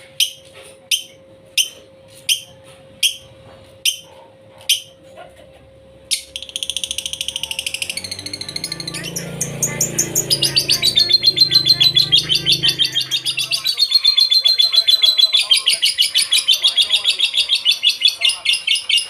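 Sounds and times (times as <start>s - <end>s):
lovebird rapid high chirps: 6.1s - 19.0s.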